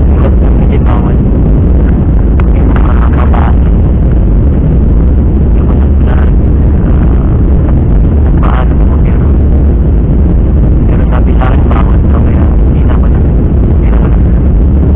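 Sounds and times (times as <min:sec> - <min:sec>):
jet engines rumbling in cabin: 0:00.0 - 0:14.9.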